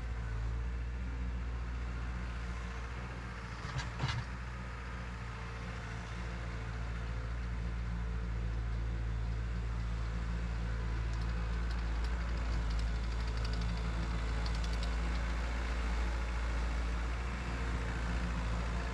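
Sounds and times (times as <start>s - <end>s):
diesel engine idling: 9.5s - 18.9s.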